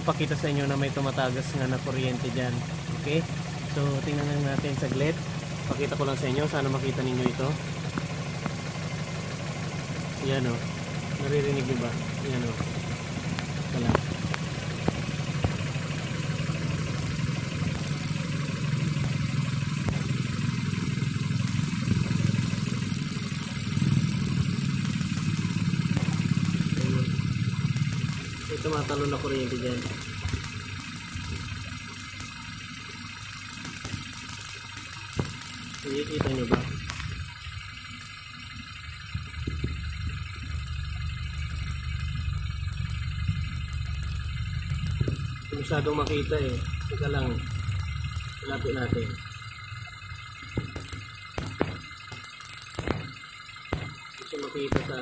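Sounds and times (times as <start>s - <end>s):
car engine idling: 0.0s - 55.0s
faint ticks of spark jumping: 11.5s - 55.0s
faint sharp ticks: 39.2s - 55.0s.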